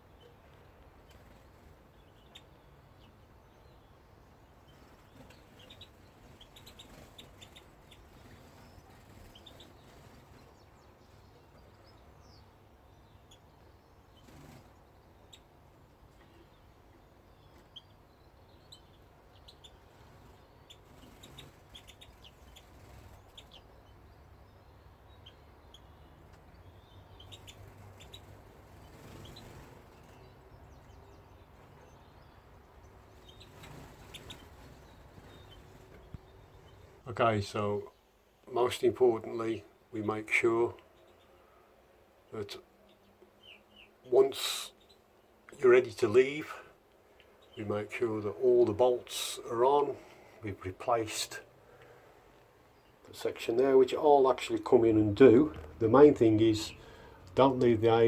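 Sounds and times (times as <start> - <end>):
small birds chirping faintly: 0.0 - 58.0.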